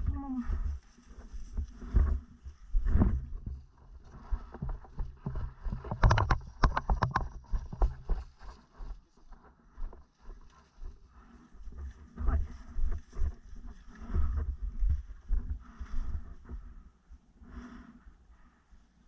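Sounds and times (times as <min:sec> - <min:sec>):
microphone handling noise: 0:01.5 - 0:08.2.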